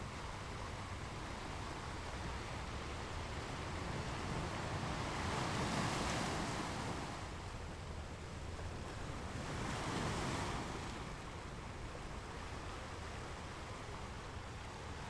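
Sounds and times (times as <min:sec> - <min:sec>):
ocean waves washing ashore: 0:08.6 - 0:15.0.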